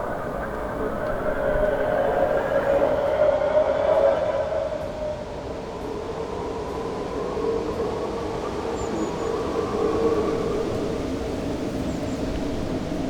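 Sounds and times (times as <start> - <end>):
held tones sliding lower: 0.0 - 3.2
droning hum: 0.0 - 3.4.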